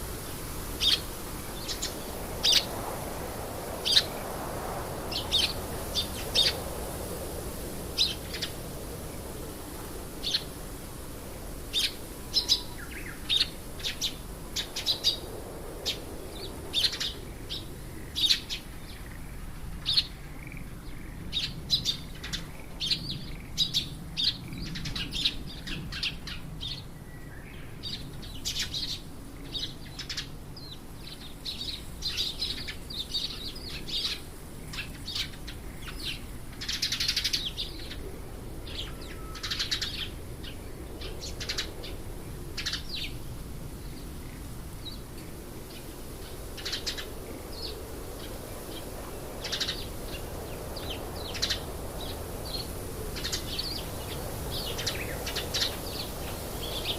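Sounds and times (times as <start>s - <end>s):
birds chirping: 8.0s - 8.6s, 11.7s - 15.3s, 43.8s - 56.9s.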